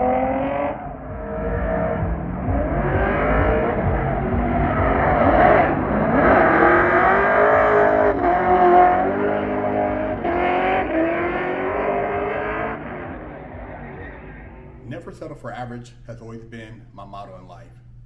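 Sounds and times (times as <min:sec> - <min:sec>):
car engine revving hard: 0:00.0 - 0:14.8.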